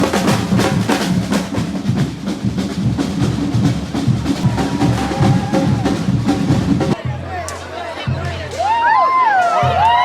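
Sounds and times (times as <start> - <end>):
drums beating steady rhythm: 0.0 - 10.0.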